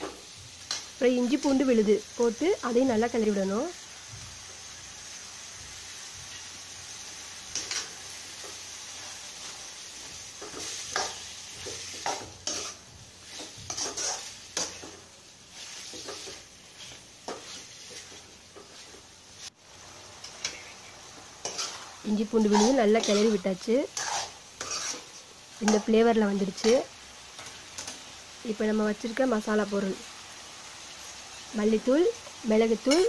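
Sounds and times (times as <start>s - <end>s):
food sizzling in oil: 0.0s - 33.0s
metal spoon scraping a pot: 11.9s - 14.8s, 21.4s - 25.9s.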